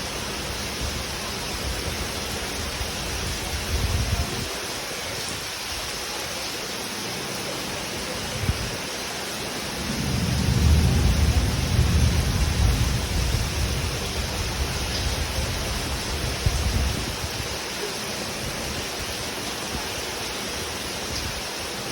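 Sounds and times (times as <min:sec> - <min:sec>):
steady rain hiss: 0:00.0 - 0:21.9
thunder rumbling: 0:09.7 - 0:17.3.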